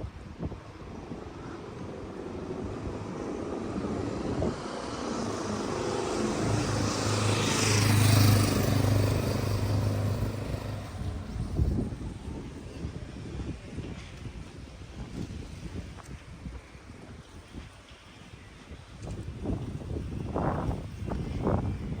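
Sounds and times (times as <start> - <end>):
engine passing by: 0.8 - 12.7.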